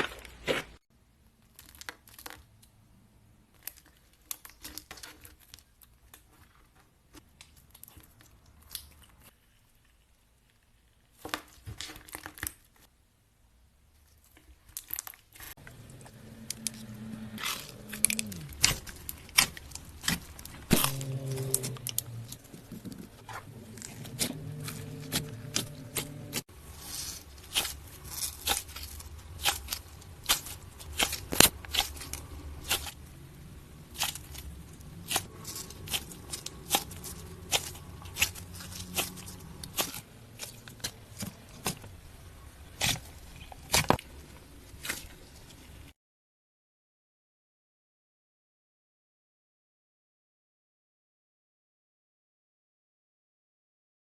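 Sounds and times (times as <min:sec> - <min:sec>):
slime crackling and popping: 0:14.6 - 0:42.1.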